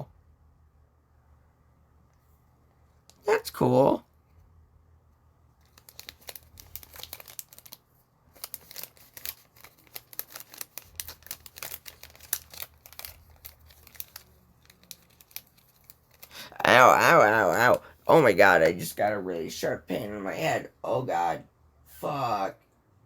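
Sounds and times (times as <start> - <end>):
foil wrapper crinkling and tearing: 5.6 - 18.4.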